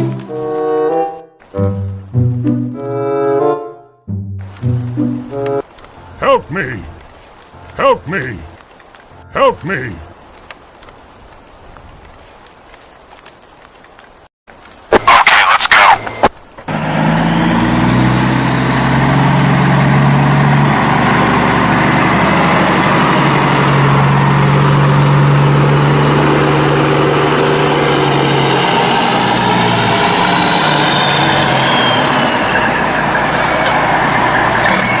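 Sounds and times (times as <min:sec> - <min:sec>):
heavy engine running: 0:16.7 - 0:35.0.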